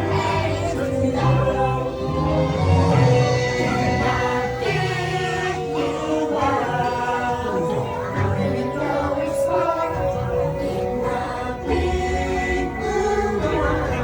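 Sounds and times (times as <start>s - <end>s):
music with voices singing: 0.0s - 14.0s.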